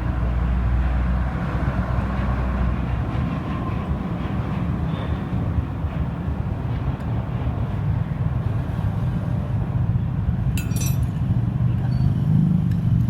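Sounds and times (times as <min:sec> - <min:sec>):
metal parts clinking: 0:10.6 - 0:11.2.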